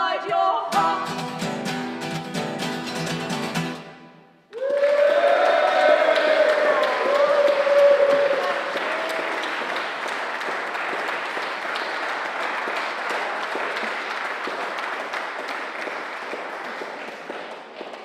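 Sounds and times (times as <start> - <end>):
audience applauding: 4.5 - 18.0.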